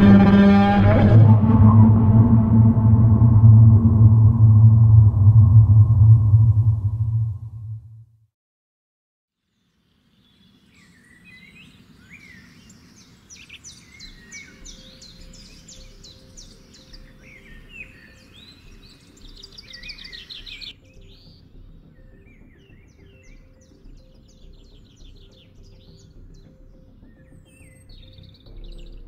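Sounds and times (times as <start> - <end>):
birds chirping and trilling: 0.0 - 2.5, 9.5 - 29.0.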